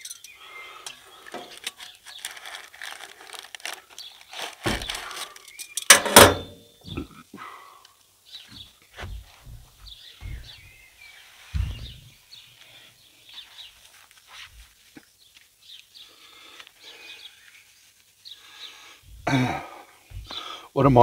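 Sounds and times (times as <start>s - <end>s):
small birds chirping: 0.0s - 5.9s, 6.7s - 21.0s
low dull thumps: 9.0s - 10.8s, 20.1s - 20.4s.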